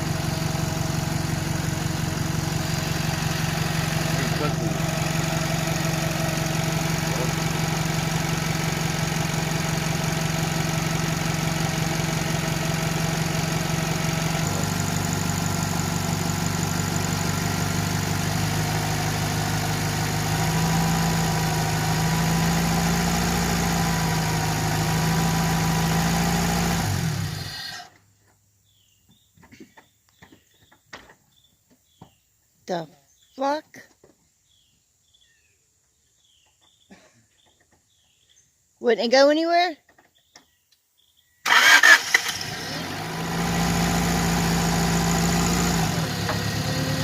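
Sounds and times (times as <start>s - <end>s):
engine idling: 0.0s - 27.9s, 41.5s - 47.0s.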